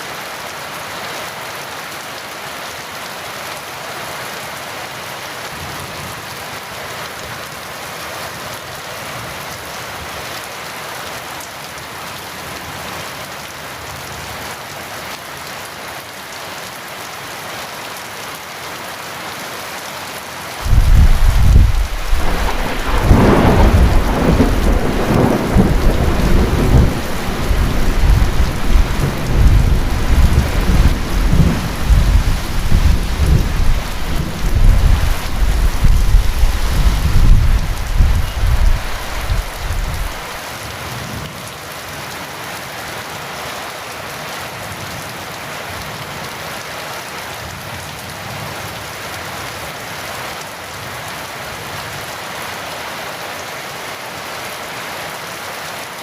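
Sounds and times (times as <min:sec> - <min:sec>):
heavy rain pouring: 0:00.0 - 0:56.0
rolling thunder: 0:20.6 - 0:40.3.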